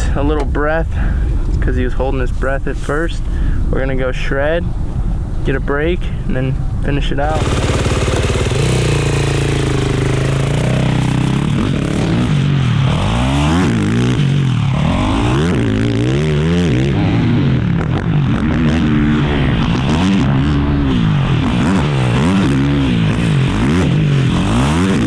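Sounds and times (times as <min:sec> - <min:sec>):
quad engine revving: 0:07.2 - 0:25.0.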